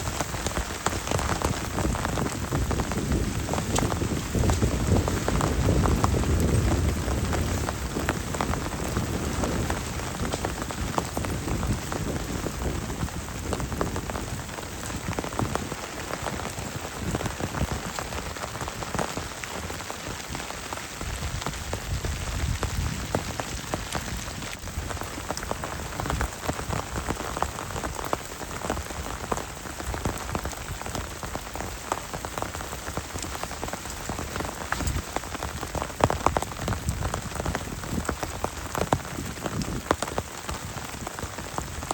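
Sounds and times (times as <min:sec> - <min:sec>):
thunder rumble: 0:00.0 - 0:19.0
heavy rain pattering: 0:00.0 - 0:41.9.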